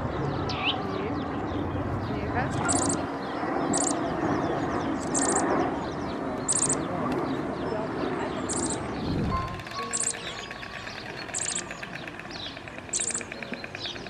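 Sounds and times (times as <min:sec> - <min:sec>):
dense background murmur: 0:00.0 - 0:14.0
small bird chirping: 0:02.6 - 0:03.1, 0:03.7 - 0:04.0, 0:04.9 - 0:05.6, 0:06.5 - 0:06.9, 0:08.4 - 0:14.0.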